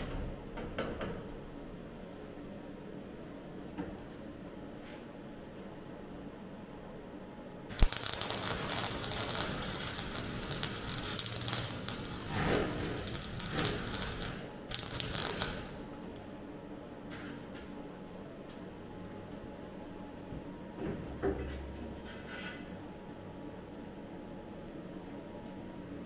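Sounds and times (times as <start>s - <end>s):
welding arc crackling: 7.7s - 15.8s.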